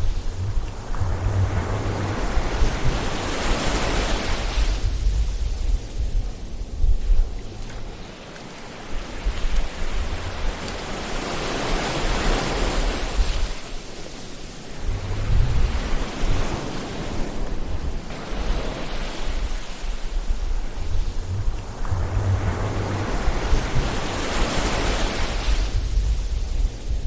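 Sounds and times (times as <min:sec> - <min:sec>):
ocean waves surging: 0:00.0 - 0:05.3, 0:07.4 - 0:26.9
low rumble: 0:00.0 - 0:08.0, 0:14.8 - 0:16.4, 0:19.4 - 0:27.0.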